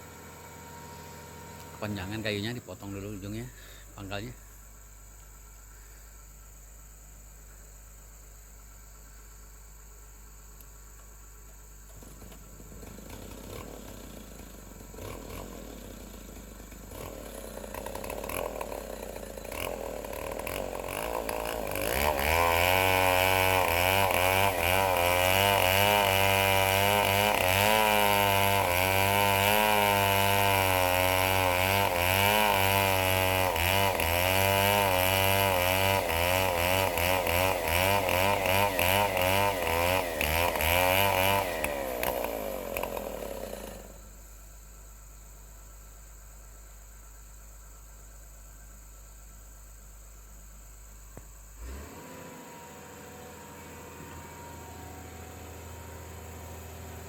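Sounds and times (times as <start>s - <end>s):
chainsaw cutting logs: 0.0s - 4.3s, 11.5s - 44.2s, 51.2s - 57.0s.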